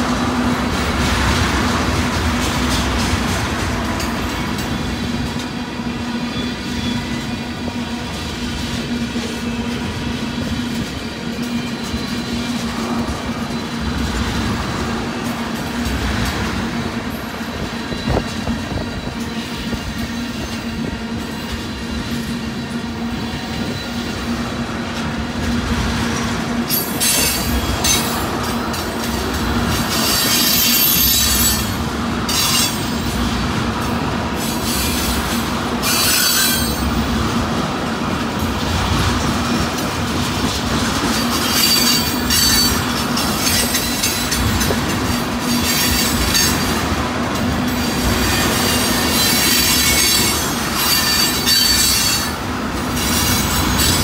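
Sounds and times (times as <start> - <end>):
train wheels clattering over rails: 0.0 - 54.0
high-pitched wheel squeal: 35.8 - 36.8, 49.2 - 52.4.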